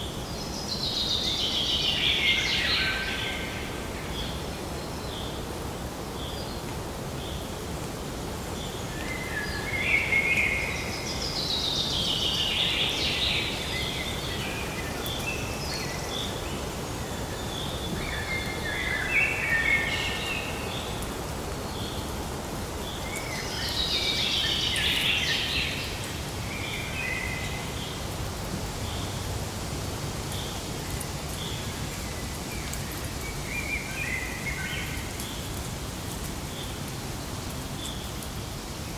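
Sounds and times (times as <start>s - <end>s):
steady background hiss: 0.0s - 38.9s
birds singing: 22.8s - 28.0s.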